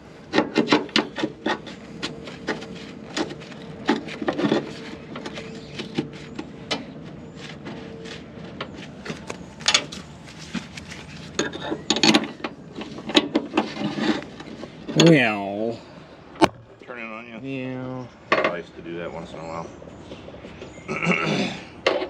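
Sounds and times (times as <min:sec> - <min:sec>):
metal clanks and knocks: 0:00.3 - 0:07.8, 0:11.3 - 0:15.2, 0:18.3 - 0:18.7.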